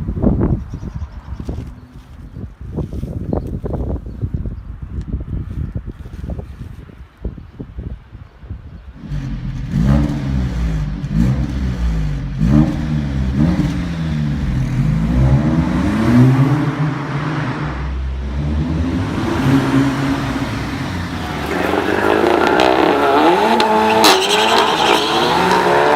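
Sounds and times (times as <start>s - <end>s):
car engine revving: 9.0s - 25.9s.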